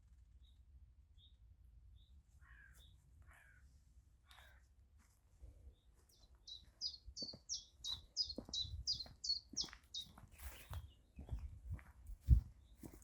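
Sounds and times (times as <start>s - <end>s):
crow cawing: 3.3s - 3.6s
songbird singing high falling notes: 6.5s - 10.1s.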